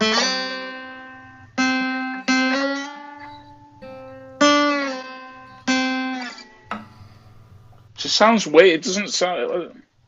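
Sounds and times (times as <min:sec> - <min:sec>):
slide guitar notes: 0:00.0 - 0:07.9.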